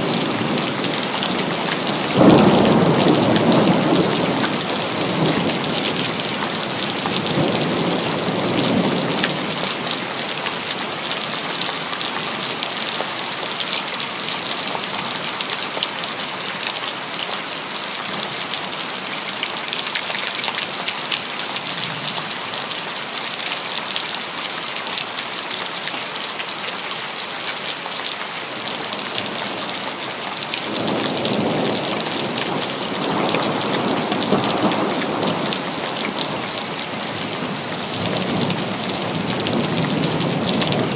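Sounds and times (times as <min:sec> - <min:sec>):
thunder rumbling: 0:00.0 - 0:09.6
steady rain falling: 0:00.0 - 0:40.9.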